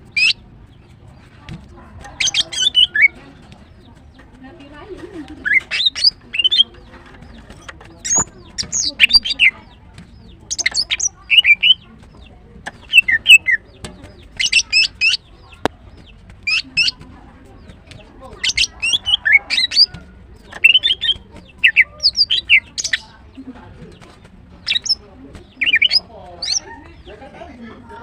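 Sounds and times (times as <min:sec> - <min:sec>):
bird chirping and whistling: 0:00.1 - 0:00.4, 0:02.2 - 0:03.2, 0:05.4 - 0:06.6, 0:08.0 - 0:09.5, 0:10.5 - 0:11.8, 0:12.7 - 0:13.6, 0:14.3 - 0:15.2, 0:16.5 - 0:17.0, 0:18.4 - 0:19.9, 0:20.5 - 0:23.1, 0:24.6 - 0:25.0, 0:25.6 - 0:26.7.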